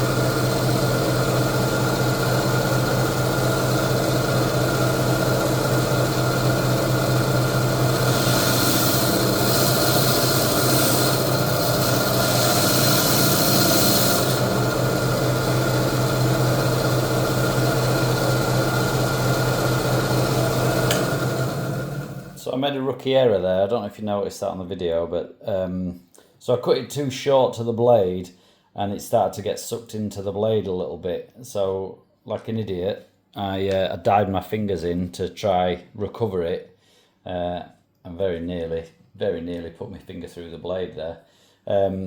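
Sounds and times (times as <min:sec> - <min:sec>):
electric saw motor hum: 0:00.0 - 0:22.4.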